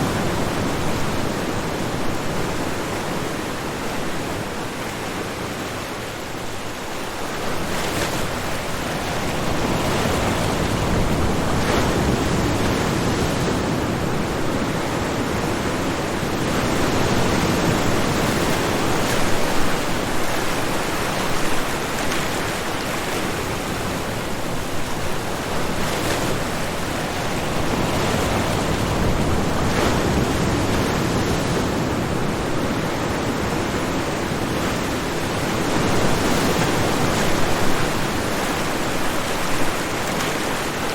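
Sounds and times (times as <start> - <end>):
ocean waves washing on shore: 0.0 - 40.9.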